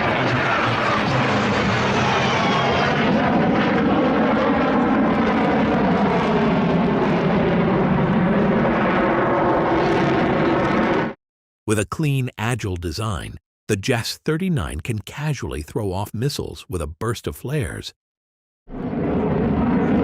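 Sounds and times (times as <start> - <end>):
aircraft engine droning: 0.0 - 11.2, 18.7 - 20.0.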